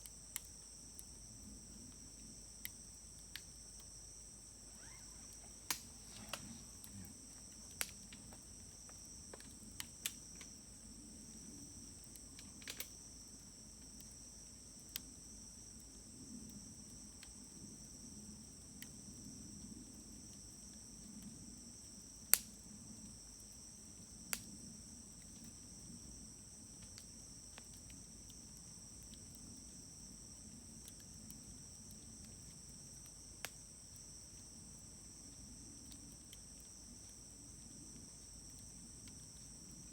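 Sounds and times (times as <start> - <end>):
wood fire crackling: 0.0 - 15.1
insects trilling: 0.0 - 39.9.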